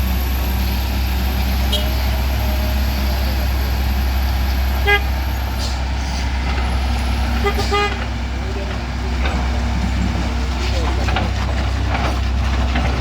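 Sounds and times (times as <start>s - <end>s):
heavy vehicle engine rumbling: 0.0s - 13.0s
horn toots: 1.7s - 2.8s, 4.8s - 5.2s, 7.4s - 8.0s.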